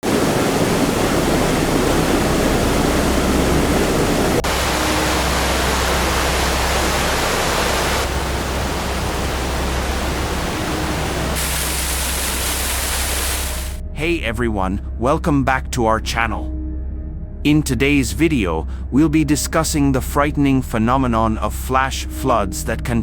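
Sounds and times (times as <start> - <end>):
floodwater rushing: 0.0 - 13.8.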